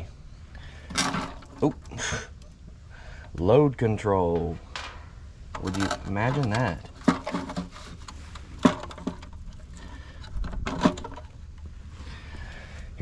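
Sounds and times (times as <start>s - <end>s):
steady low hum: 0.0s - 13.0s
object handling clicks and knocks: 0.8s - 3.4s, 4.3s - 11.7s.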